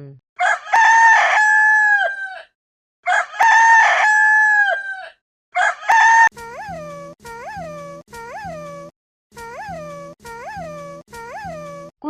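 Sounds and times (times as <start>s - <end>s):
rooster crowing: 0.4s - 6.6s.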